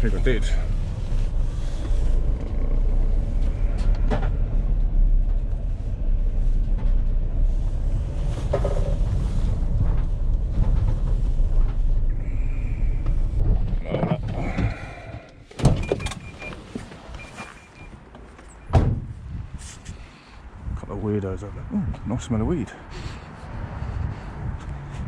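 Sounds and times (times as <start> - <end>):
van engine and road noise: 0.0 - 25.0
knocks and rattles: 8.4 - 12.2, 12.9 - 16.3.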